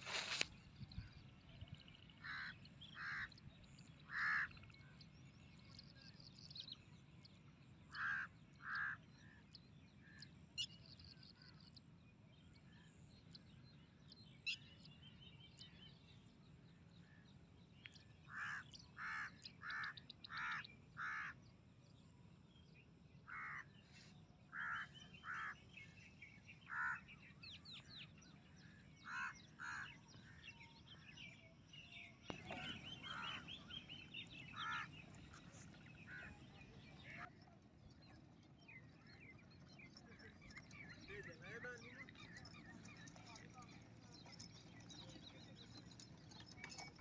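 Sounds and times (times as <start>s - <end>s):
loud bird calls: 4.0s - 4.7s, 7.9s - 9.4s, 18.3s - 21.4s, 23.2s - 31.1s, 32.0s - 37.3s
high chirps of small birds: 27.6s - 37.3s.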